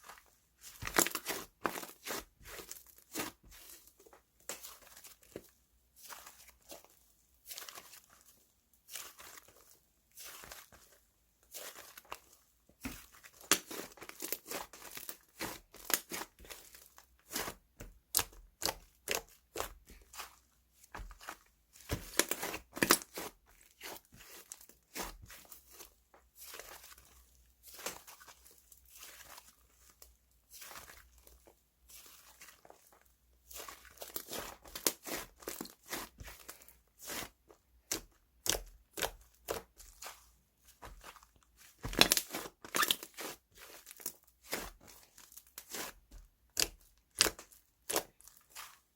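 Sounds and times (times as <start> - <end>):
slime squishing with crackling pops: 12.9 - 16.6, 33.6 - 48.7.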